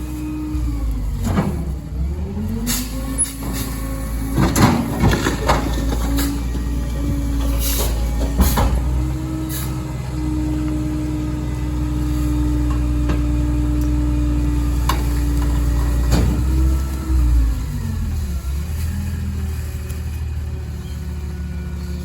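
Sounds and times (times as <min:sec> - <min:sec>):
garbage truck engine and hydraulics: 0:00.0 - 0:22.0
debris cracking and crushing: 0:04.2 - 0:06.7.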